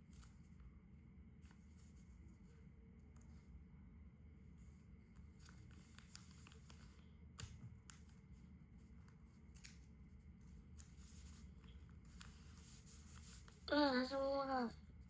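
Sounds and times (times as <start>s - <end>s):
low steady hum: 0.0s - 15.0s
paper rustling and crackling: 5.1s - 13.7s.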